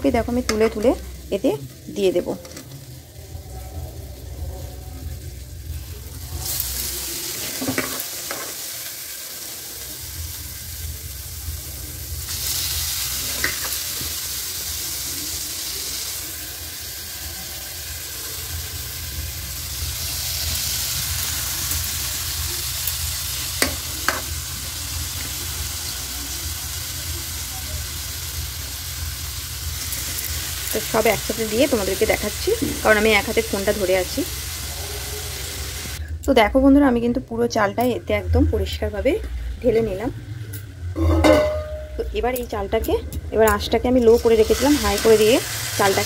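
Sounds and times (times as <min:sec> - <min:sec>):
food sizzling in hot oil: 0:00.0 - 0:36.0, 0:41.0 - 0:42.6, 0:43.3 - 0:46.0
metal knocking on pan: 0:41.0 - 0:42.1.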